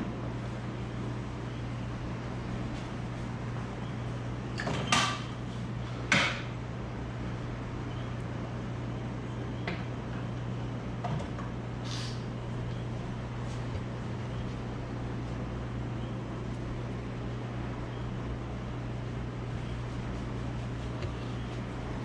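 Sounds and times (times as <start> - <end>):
short hissing bursts: 11.8 - 12.3.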